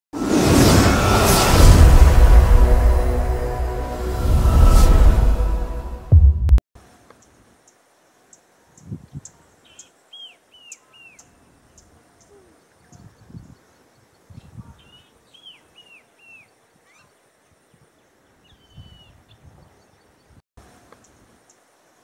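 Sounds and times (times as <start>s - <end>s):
low muffled thumps: 6.0s - 6.6s
thin high bird ticks: 7.0s - 8.4s, 20.9s - 21.6s.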